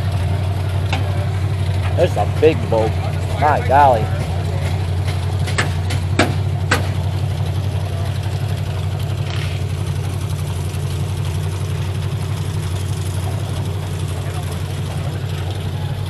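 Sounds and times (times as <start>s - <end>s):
car engine idling: 0.0s - 16.0s
sharp knocks: 4.7s - 7.0s.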